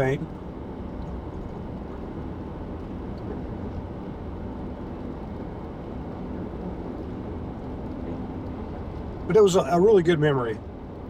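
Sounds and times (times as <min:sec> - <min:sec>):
car engine and tyre noise: 0:00.0 - 0:11.0.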